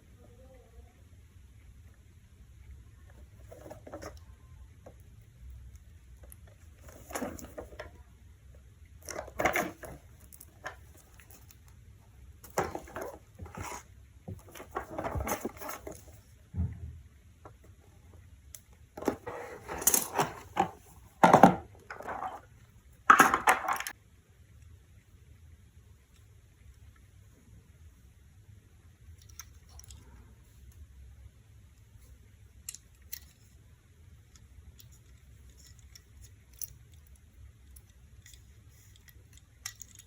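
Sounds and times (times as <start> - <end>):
toy truck scraping and clicking: 12.5 - 13.9, 19.0 - 22.5.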